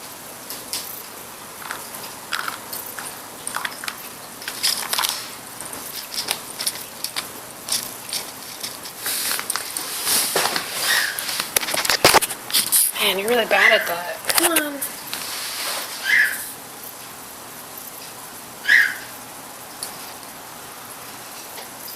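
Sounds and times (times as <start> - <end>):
toy clicking and rattling: 1.6 - 9.9.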